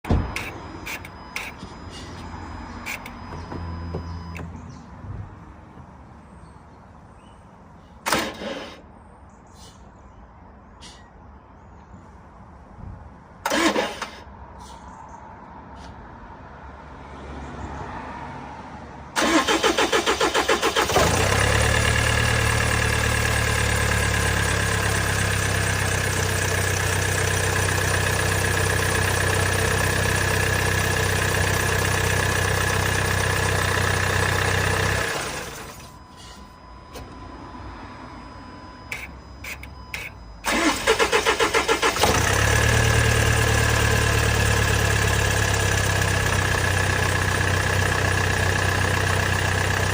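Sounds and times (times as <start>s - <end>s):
car engine cranking and starting: 8.1s - 8.8s, 13.4s - 14.3s, 19.2s - 36.0s, 38.9s - 49.9s.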